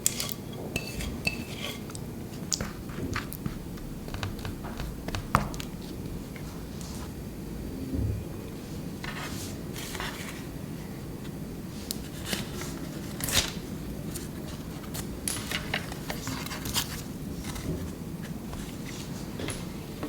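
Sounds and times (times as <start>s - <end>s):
utensils and dishes clicking: 0.0s - 2.7s.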